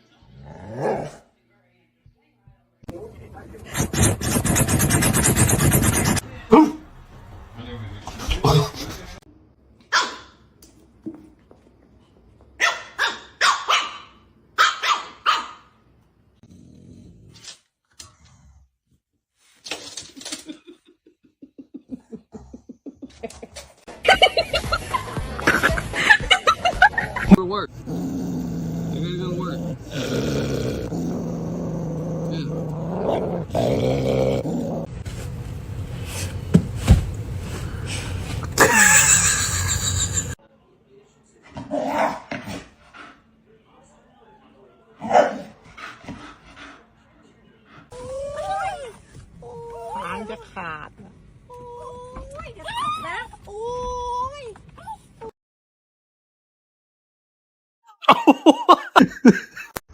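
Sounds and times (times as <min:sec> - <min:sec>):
dog barking: 0:09.9 - 0:10.4, 0:12.6 - 0:15.7, 0:45.0 - 0:45.6
dog growling: 0:16.4 - 0:17.5, 0:27.7 - 0:35.0.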